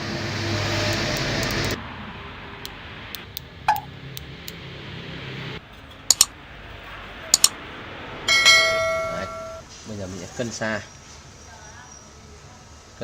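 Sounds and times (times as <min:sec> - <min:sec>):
metal piece ringing: 0:08.3 - 0:09.7.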